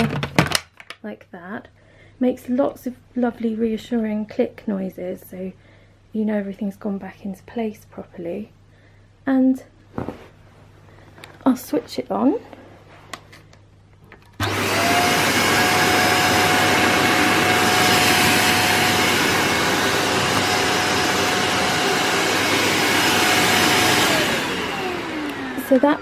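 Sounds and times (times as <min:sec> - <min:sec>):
vacuum cleaner motor whining: 0:14.4 - 0:26.0.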